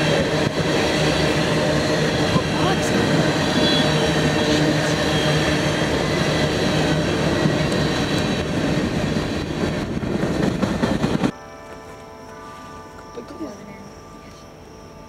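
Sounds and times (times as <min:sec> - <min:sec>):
freight train rumbling past: 0:00.0 - 0:11.7
train wheel clicks: 0:07.5 - 0:08.4.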